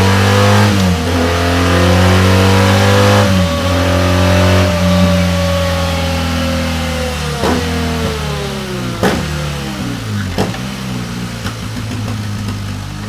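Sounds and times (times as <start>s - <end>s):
exhaust pops: 0.3s - 13.0s
motorcycle engine idling: 2.6s - 13.0s.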